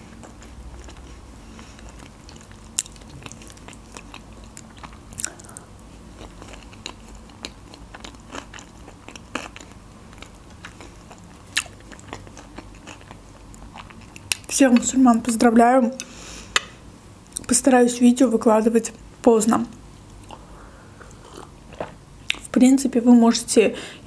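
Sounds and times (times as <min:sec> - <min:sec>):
soft wet chewing: 0:00.1 - 0:15.0, 0:20.0 - 0:22.4.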